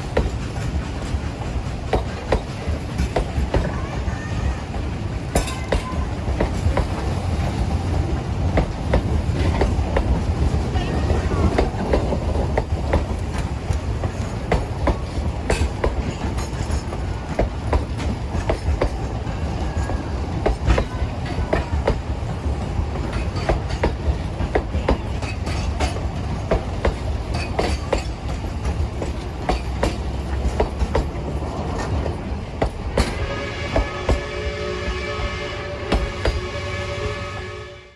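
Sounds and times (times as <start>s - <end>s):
wheels clacking over rail joints: 0.0s - 34.4s
train rumbling on track: 0.0s - 37.9s.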